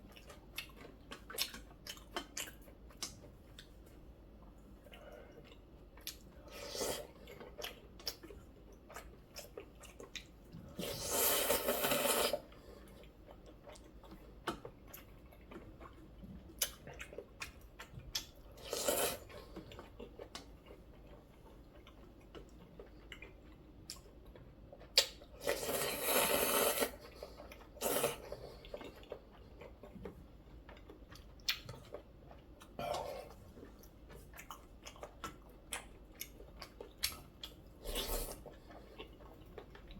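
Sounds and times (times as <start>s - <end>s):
chewing with small clicks: 0.0s - 10.9s, 12.4s - 25.5s, 27.0s - 39.9s
slurping noodles: 10.7s - 12.5s, 18.6s - 19.3s, 25.4s - 27.2s, 27.8s - 28.4s.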